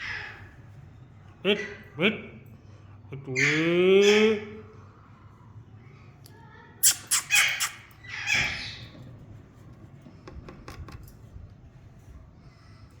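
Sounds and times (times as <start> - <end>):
parakeet squawking: 0.0 - 0.5, 6.8 - 8.9.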